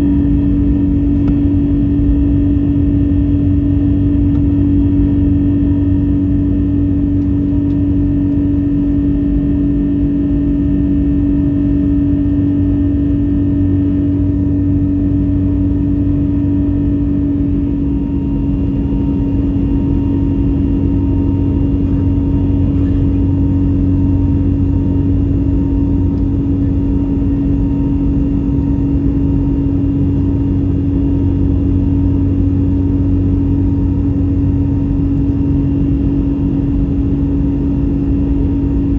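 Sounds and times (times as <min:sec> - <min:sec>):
airplane cabin hum and drone: 0:00.0 - 0:38.9.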